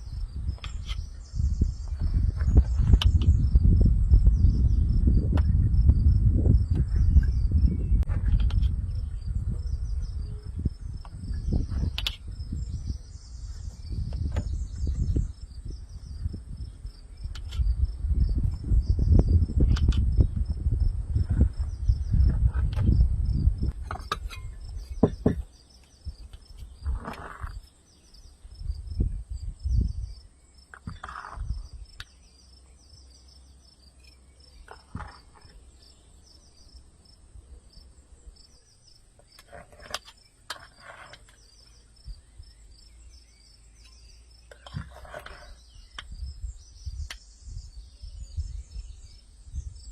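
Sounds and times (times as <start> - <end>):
insects chirping: 0.0 - 49.9
scattered knocks: 25.0 - 25.5.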